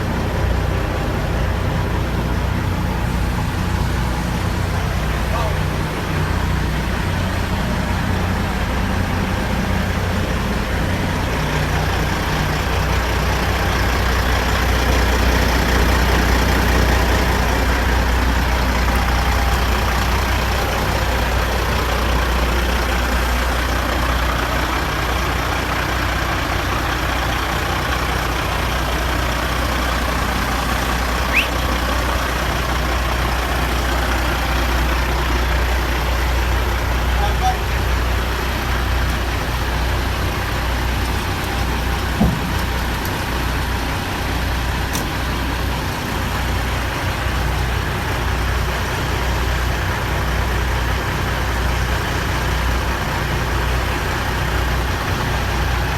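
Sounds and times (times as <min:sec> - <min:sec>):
diesel truck engine droning: 0:00.0 - 0:55.9
high chirp: 0:31.3 - 0:31.6.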